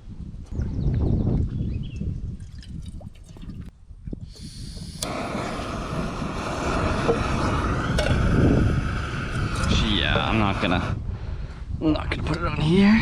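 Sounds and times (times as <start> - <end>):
wind buffeting microphone: 0.0 - 13.0
steady hiss of wind or water: 4.1 - 13.0.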